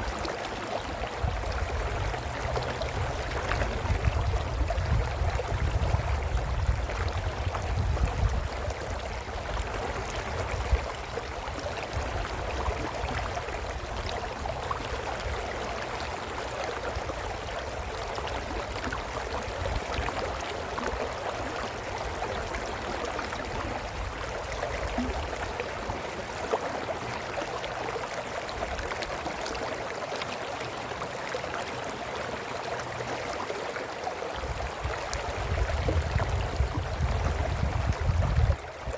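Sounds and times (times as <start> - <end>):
brook gurgling over stones: 0.0 - 38.9
low rumbling wind gusts: 1.2 - 9.4, 34.4 - 38.9.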